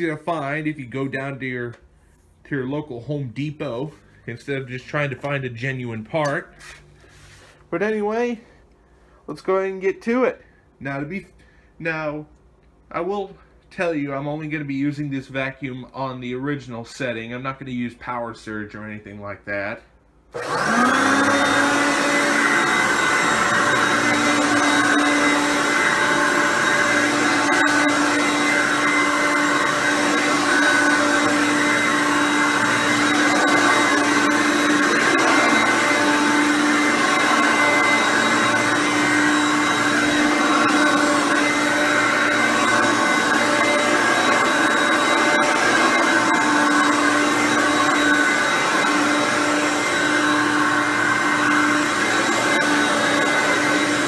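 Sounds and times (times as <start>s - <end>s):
vacuum cleaner motor running: 20.3s - 54.0s.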